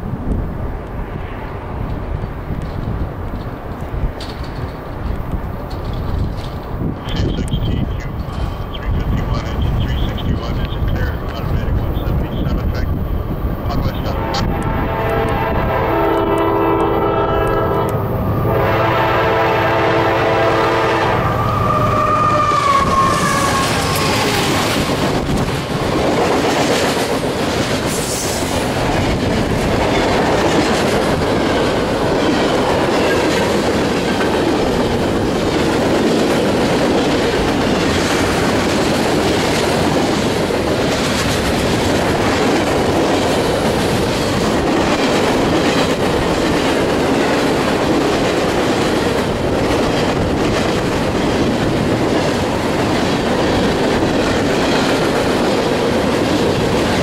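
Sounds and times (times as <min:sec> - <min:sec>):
train wheel clatter on rails: 0:01.8 - 0:16.9, 0:23.0 - 0:57.0
train air horn blasts: 0:14.1 - 0:24.6.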